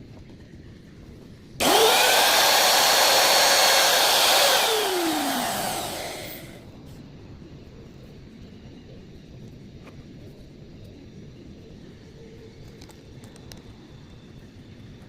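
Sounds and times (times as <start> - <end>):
electric wood router running: 1.6 - 6.6.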